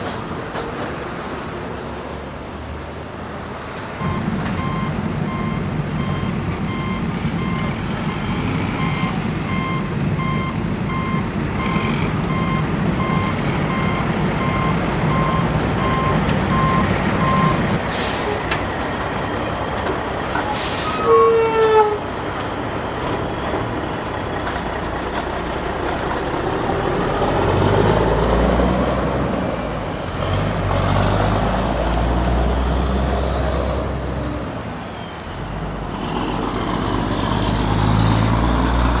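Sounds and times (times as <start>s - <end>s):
air hiss with falling squeal: 4.0s - 17.8s
backup alarm beeping: 4.0s - 17.8s
diesel engine revving: 4.0s - 17.8s.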